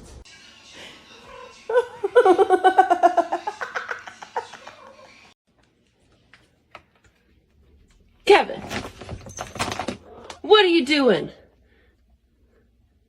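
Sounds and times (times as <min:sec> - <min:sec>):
person laughing hard: 0:01.7 - 0:05.3.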